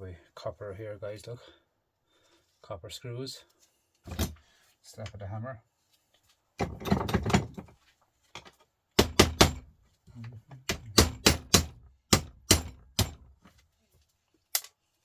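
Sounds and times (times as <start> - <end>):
hammer knocking on metal: 9.0 - 9.6, 10.7 - 13.2.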